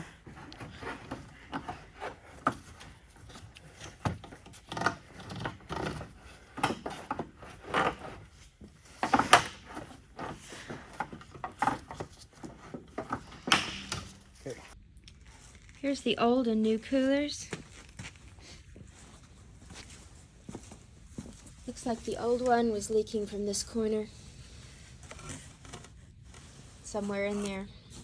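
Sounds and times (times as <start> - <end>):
car parts and tools handled: 0.0 - 15.8.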